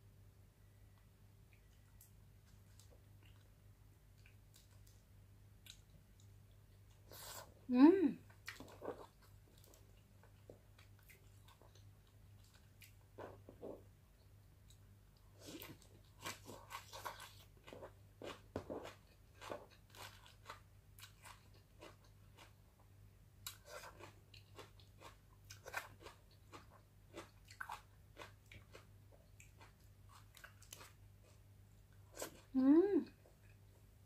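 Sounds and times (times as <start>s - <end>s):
low steady hum: 0.0s - 34.0s
crunching and chewing: 1.5s - 5.0s, 5.6s - 7.3s, 8.3s - 13.8s, 14.6s - 32.6s.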